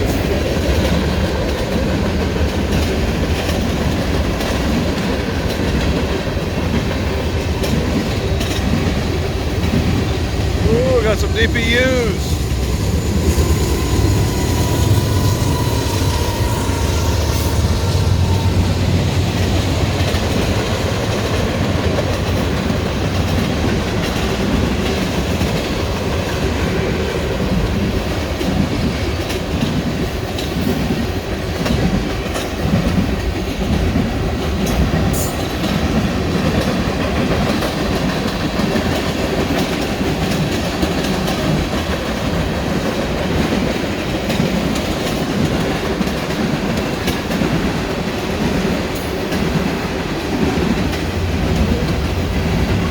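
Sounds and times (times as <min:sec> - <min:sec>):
train wheels clattering over rails: 0:00.0 - 0:52.9
locomotive engine drone: 0:07.2 - 0:23.4, 0:50.4 - 0:52.9.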